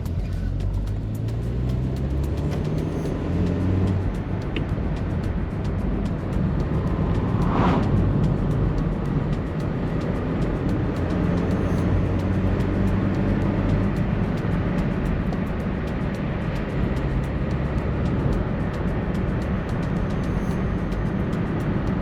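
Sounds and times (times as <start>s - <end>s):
car engine revving up: 0.0s - 22.0s
brief rushing sound: 6.8s - 8.9s.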